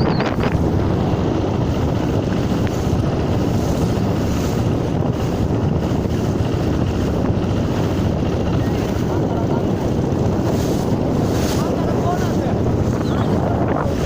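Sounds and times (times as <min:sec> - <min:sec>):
high whistling chirp: 0:00.0 - 0:00.4
choppy waves: 0:00.0 - 0:14.0
wind buffeting microphone: 0:00.0 - 0:14.0.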